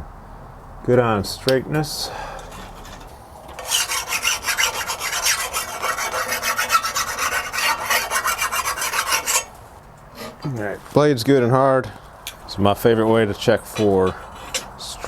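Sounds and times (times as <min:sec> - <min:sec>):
file scraping steel blade: 0:02.5 - 0:10.5, 0:13.7 - 0:15.0.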